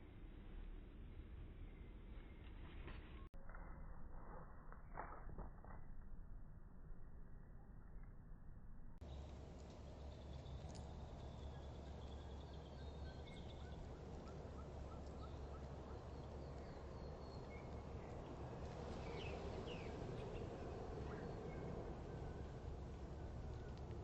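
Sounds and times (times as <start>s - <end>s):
low background hum: 5.9s - 24.0s
small birds chirping: 9.0s - 22.5s.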